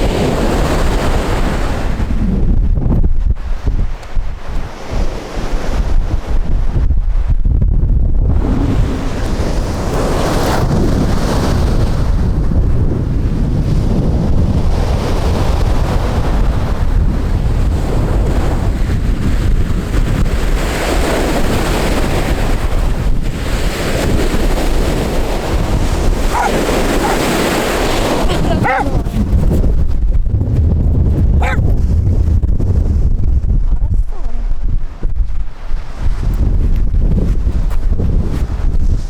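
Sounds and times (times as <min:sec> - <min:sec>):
wind buffeting microphone: 0:00.0 - 0:39.0
sea waves on shore: 0:20.9 - 0:29.5.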